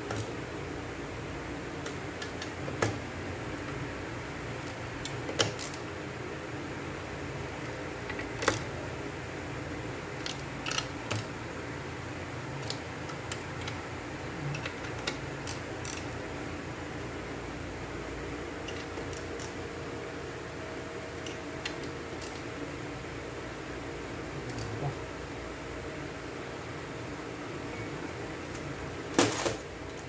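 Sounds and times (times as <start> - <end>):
fan hum: 0.0 - 30.0
small parts and tools clicking: 4.6 - 5.8, 10.2 - 11.3, 14.5 - 16.1, 21.2 - 22.4.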